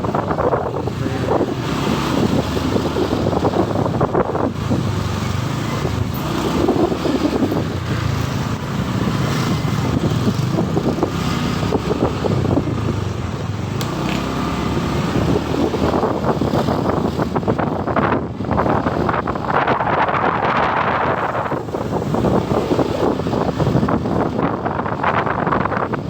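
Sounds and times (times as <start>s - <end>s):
motorcycle engine running: 0.0s - 26.0s
passing traffic: 0.0s - 26.0s
wind noise on microphone: 0.0s - 26.0s.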